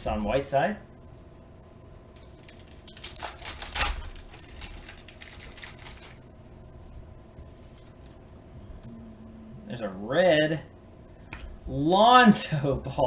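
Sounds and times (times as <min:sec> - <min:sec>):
cards clicking and rustling: 0:02.2 - 0:06.2.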